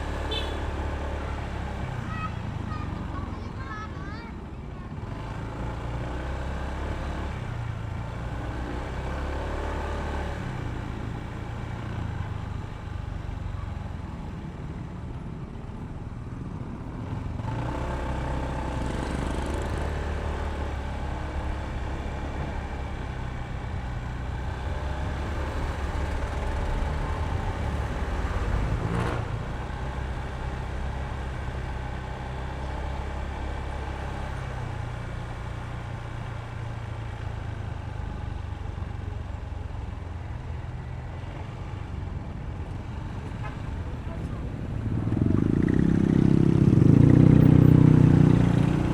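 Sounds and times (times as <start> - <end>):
road and wind noise: 0.0 - 48.9
scooter engine running: 16.4 - 48.9.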